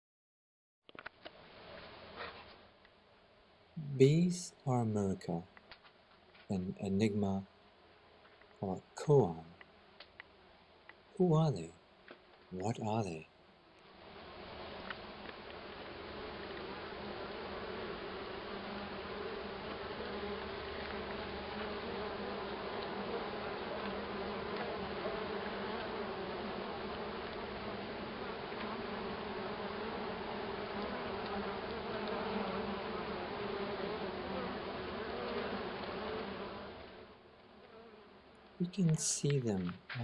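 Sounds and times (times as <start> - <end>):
bees buzzing: 13.9 - 40.0.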